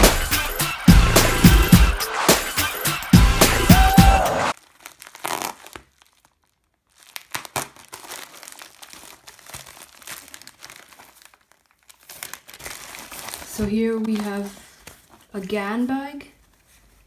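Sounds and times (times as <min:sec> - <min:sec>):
packaging crinkling and rustling: 0:04.5 - 0:17.0.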